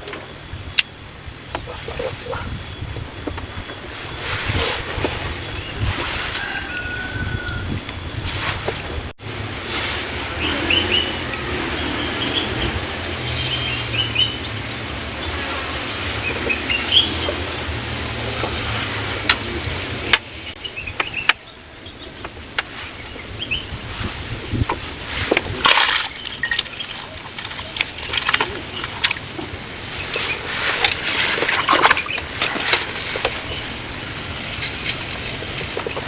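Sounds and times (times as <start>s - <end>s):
high-pitched insect drone: 9.3s - 24.7s
bird chirps: 10.3s - 18.7s, 19.3s - 24.6s.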